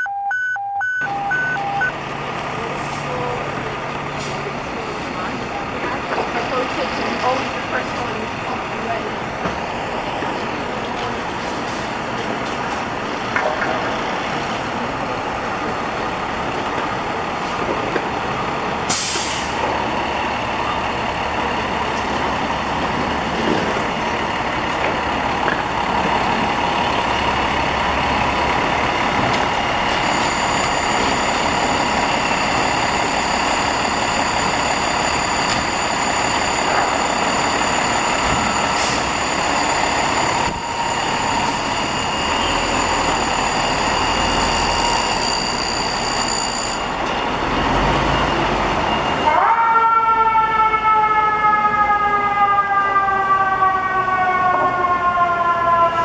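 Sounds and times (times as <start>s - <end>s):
fire engine running: 0.0s - 56.0s
air brakes hiss: 18.9s - 19.6s.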